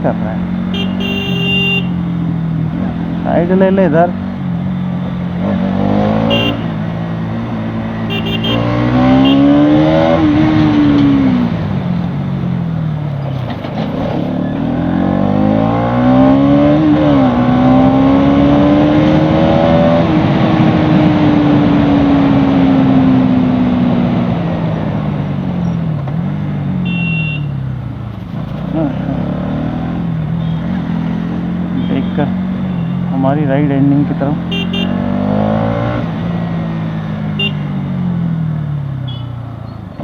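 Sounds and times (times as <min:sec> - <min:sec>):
wind and road rush: 0:00.0 - 0:40.0
motorcycle engine accelerating: 0:04.0 - 0:26.8, 0:28.0 - 0:39.0.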